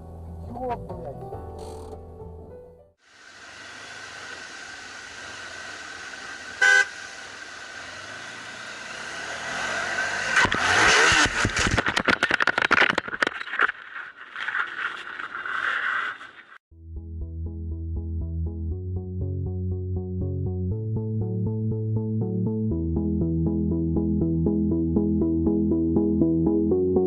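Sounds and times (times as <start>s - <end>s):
road and engine noise: 3.0s - 13.1s
car horn toot: 6.6s - 7.0s.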